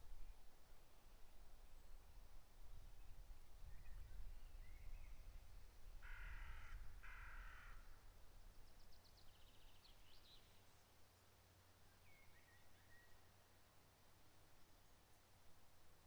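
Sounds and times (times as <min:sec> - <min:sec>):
crow cawing: 0:06.0 - 0:07.9.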